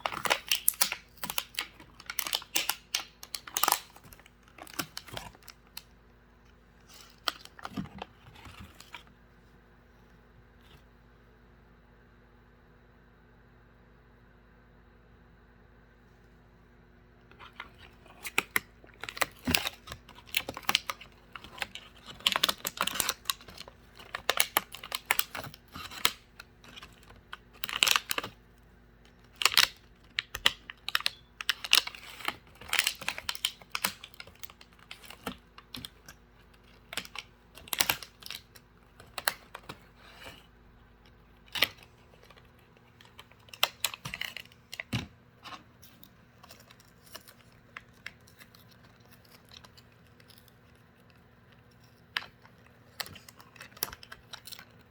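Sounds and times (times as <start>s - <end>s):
bird chewing cardboard: 17.4s - 28.4s.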